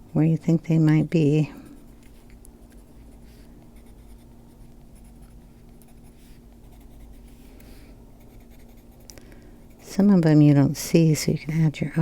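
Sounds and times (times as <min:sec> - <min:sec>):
pencil scratching on paper: 0:01.5 - 0:09.0.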